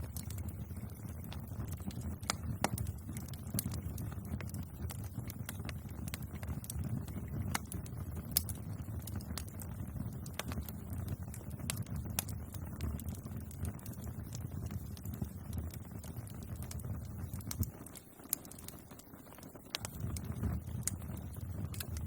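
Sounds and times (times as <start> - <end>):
bonfire crackling and popping: 0.0 - 22.0
low rumble of flames: 0.0 - 22.0.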